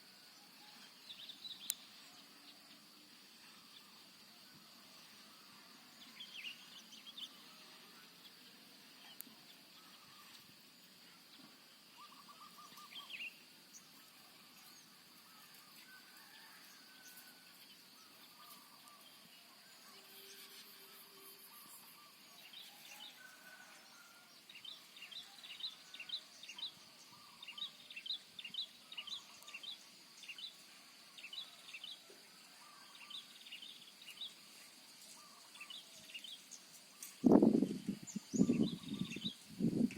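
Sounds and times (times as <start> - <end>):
steady high-pitched whine: 0.0 - 39.9
birds chirping: 35.1 - 39.9.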